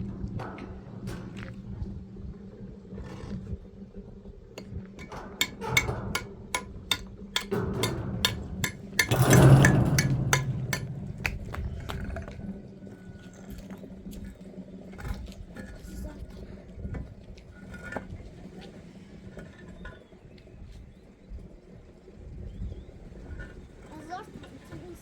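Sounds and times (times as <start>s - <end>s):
hard objects clinking and knocking: 5.0s - 12.5s.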